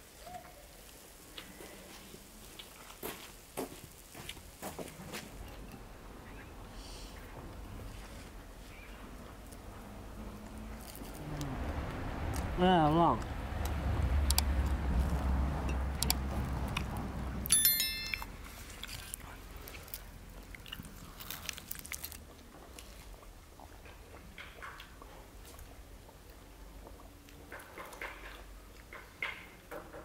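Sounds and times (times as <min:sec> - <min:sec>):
people chewing crisp food: 0:00.3 - 0:05.6, 0:07.2 - 0:17.4, 0:18.4 - 0:29.7
short bright chime: 0:17.5 - 0:18.3.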